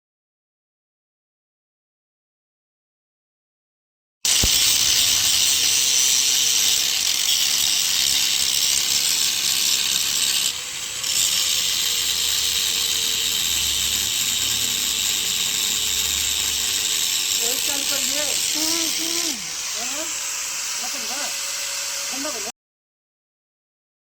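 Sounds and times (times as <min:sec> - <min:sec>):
power machinery running: 0:04.3 - 0:22.5.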